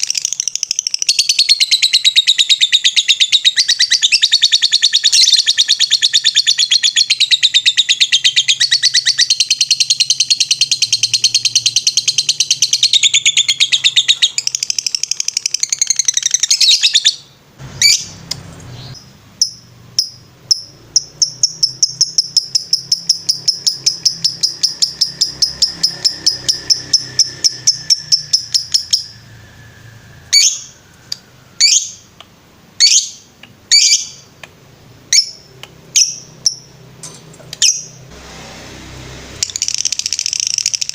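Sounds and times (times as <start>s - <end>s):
bird chattering trill: 0.0s - 18.2s, 18.8s - 29.3s, 39.4s - 40.9s
bird chirps: 0.0s - 36.9s, 37.5s - 38.1s, 39.4s - 40.9s.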